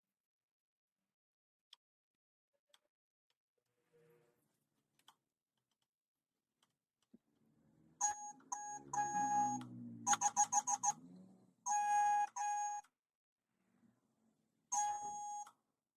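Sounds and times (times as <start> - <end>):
electronic beeping: 8.0 - 12.8, 14.7 - 15.5.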